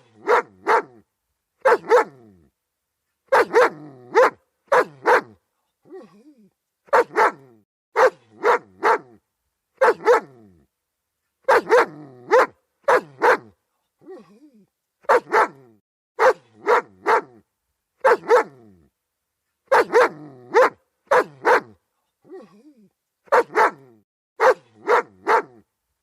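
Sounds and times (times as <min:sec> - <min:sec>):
dog barking: 0:00.0 - 0:01.0, 0:01.6 - 0:02.2, 0:03.3 - 0:05.4, 0:06.9 - 0:09.2, 0:09.8 - 0:10.4, 0:11.4 - 0:13.6, 0:15.0 - 0:17.4, 0:18.0 - 0:18.6, 0:19.7 - 0:21.8, 0:23.3 - 0:25.7.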